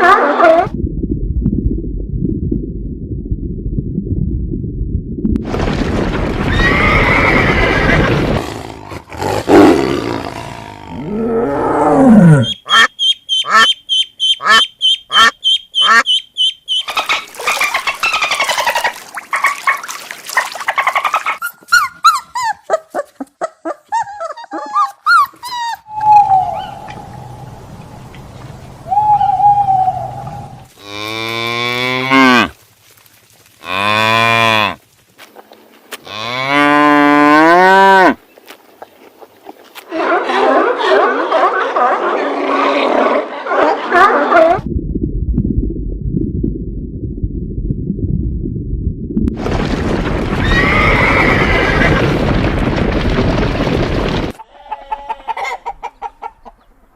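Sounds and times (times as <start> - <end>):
animal clicking and chirping calls: 12.4 - 19.8.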